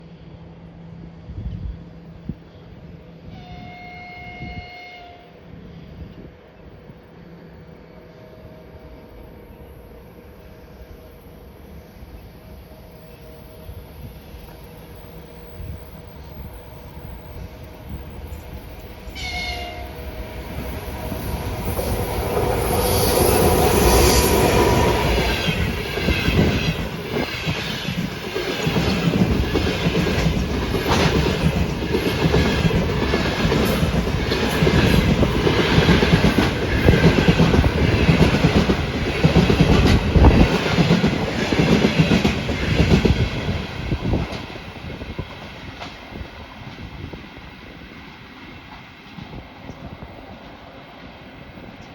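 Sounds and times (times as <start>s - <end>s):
electric locomotive passing: 0.0s - 51.9s
train wheels clicking over rail joints: 20.6s - 47.0s.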